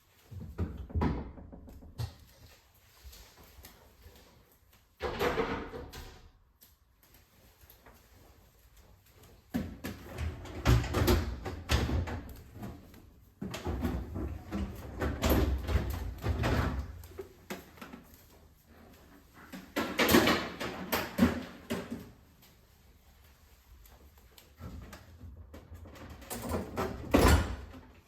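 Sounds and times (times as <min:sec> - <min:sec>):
fridge shelves sliding and rattling: 0:05.0 - 0:06.3, 0:09.6 - 0:17.2, 0:24.7 - 0:28.0.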